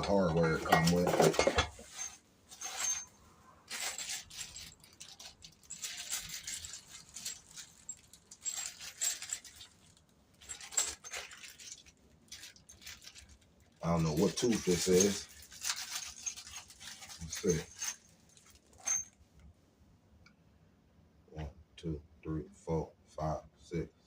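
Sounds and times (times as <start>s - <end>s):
small metal hardware clinking: 18.8s - 19.2s.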